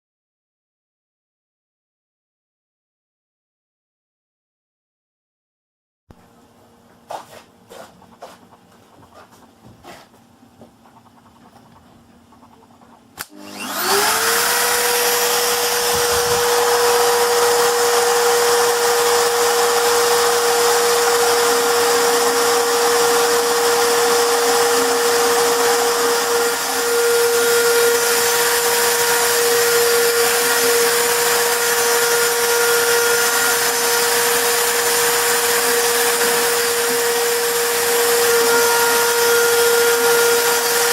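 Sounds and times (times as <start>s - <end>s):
router spindle motor whining: 13.2s - 40.9s.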